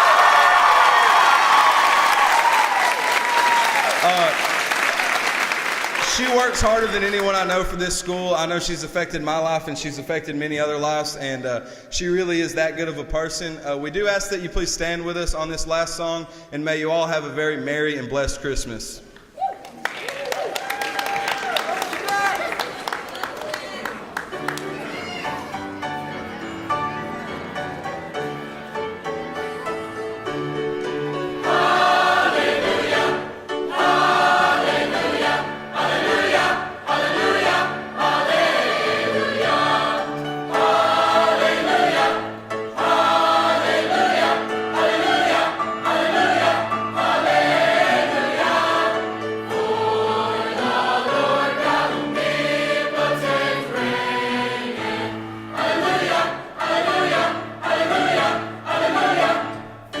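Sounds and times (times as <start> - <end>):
choir singing: 29.6 - 60.0.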